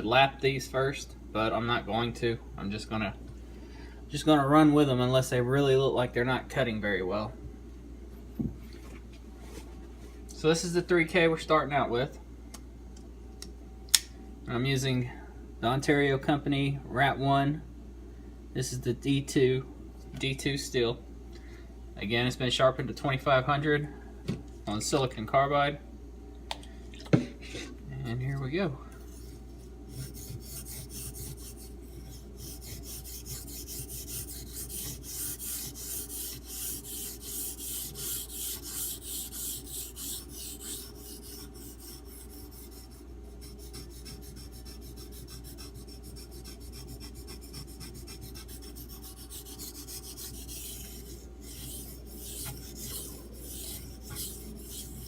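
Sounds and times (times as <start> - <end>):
knife blade scraping on whetstone: 29.9 - 42.8, 43.4 - 55.0.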